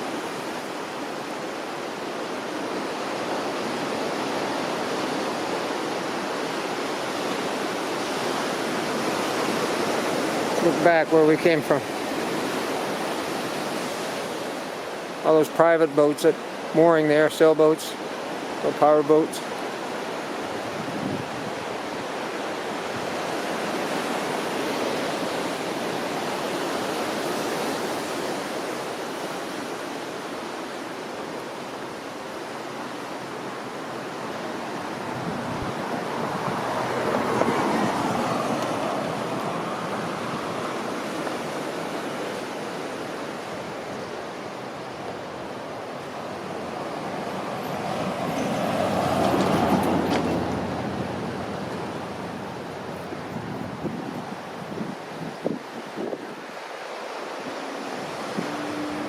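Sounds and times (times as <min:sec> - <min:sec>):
outdoor rushing noise: 0:46.0 - 0:54.0.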